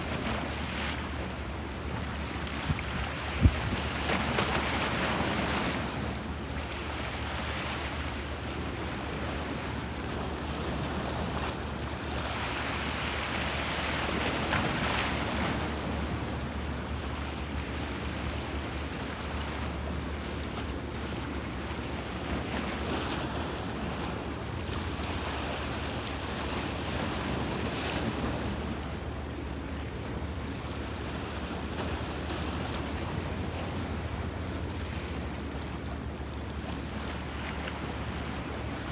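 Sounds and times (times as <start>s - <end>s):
wind buffeting microphone: 2.6s - 3.9s.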